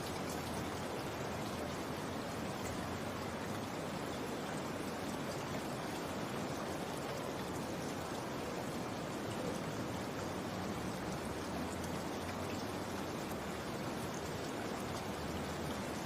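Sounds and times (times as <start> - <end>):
faint raindrop ticks: 0.0 - 2.8
steady rainfall hiss: 0.0 - 16.0.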